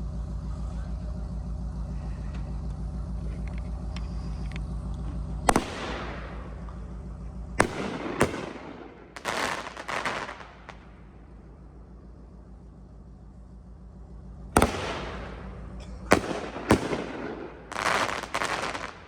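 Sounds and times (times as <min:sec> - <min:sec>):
steady low hum: 0:00.0 - 0:19.0
firework cake bangs: 0:07.6 - 0:10.9, 0:14.6 - 0:19.0.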